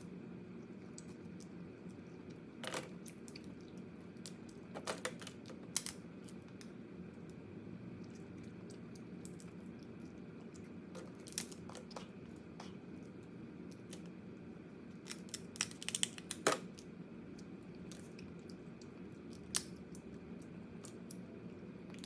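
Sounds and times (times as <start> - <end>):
crab shell cracking: 15.0 - 16.9, 19.3 - 20.0.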